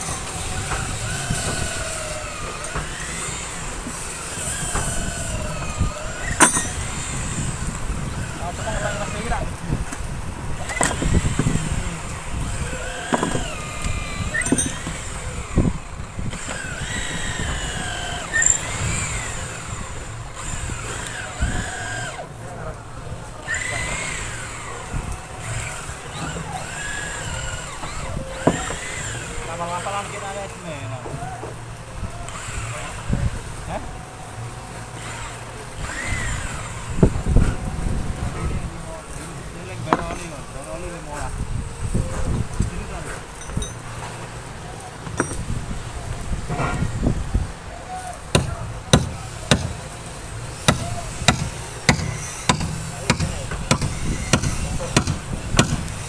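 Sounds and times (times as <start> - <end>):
power tool cutting timber: 0.0 - 22.6, 23.3 - 33.9, 34.7 - 41.2, 48.0 - 56.0
hand tool striking timber: 6.4 - 6.8, 45.0 - 45.4, 48.3 - 50.0, 50.6 - 56.0.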